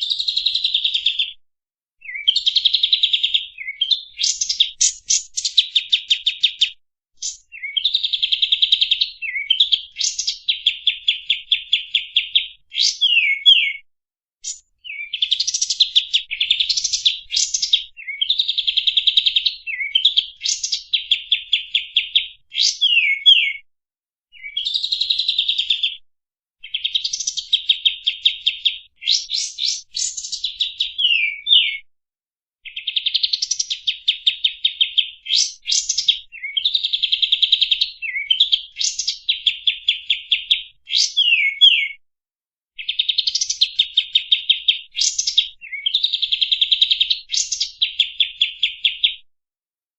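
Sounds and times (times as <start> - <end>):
songbird singing trills: 2.0 - 13.8, 14.4 - 23.6, 26.6 - 31.8, 32.6 - 42.0, 42.8 - 46.2.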